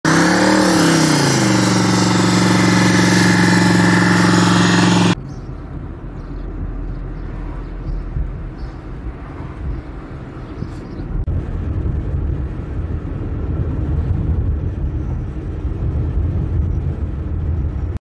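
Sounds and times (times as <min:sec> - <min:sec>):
spinning tyres hissing: 0:00.0 - 0:05.2
car engine at high revs: 0:00.0 - 0:17.7
car cabin rumble: 0:02.5 - 0:18.0.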